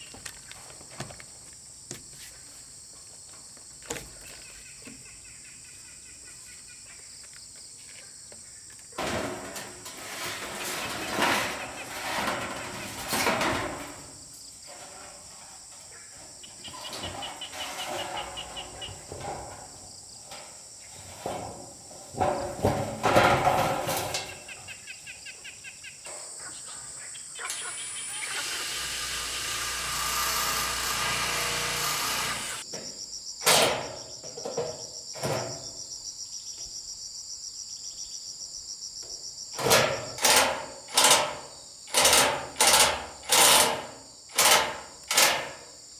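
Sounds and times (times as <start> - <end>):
rough scraping noise: 9.0 - 15.8, 16.7 - 24.4, 27.6 - 32.6
insects trilling: 24.2 - 44.5.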